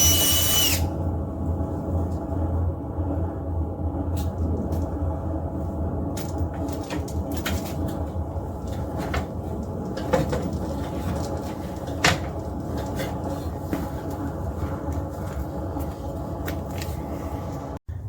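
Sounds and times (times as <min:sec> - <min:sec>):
drill motor hum: 0:00.0 - 0:00.9.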